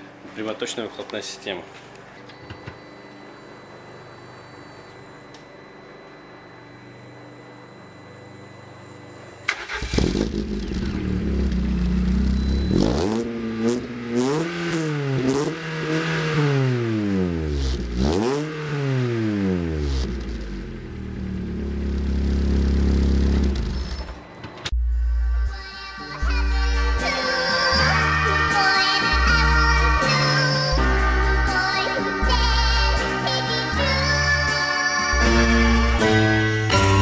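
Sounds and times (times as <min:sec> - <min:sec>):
engine idling: 0:09.5 - 0:12.8, 0:20.0 - 0:24.0
car engine revving: 0:09.5 - 0:24.1.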